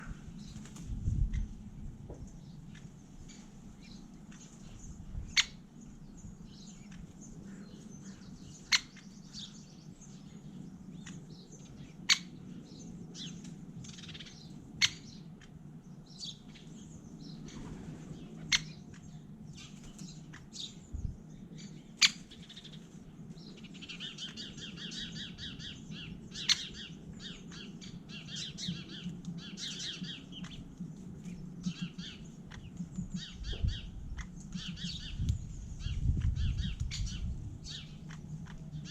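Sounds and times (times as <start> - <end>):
rapid high bird twittering: 2.2 - 38.9
woodpecker kik calls: 26.4 - 26.9.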